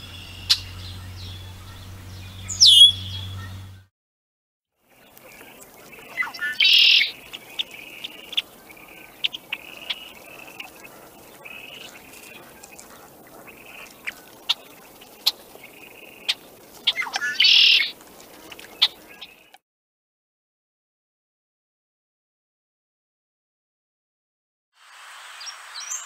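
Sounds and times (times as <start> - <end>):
blackbird singing gurgling song: 0.0 - 3.8, 4.9 - 19.6
bird call notes: 0.0 - 3.9, 5.0 - 19.5.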